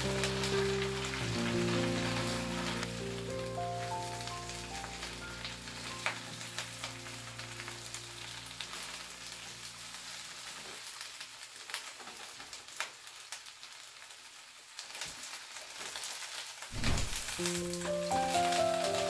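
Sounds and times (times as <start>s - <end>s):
soft background music: 0.0s - 10.5s, 16.9s - 19.0s
cabbage sizzling in a wok: 0.0s - 19.0s.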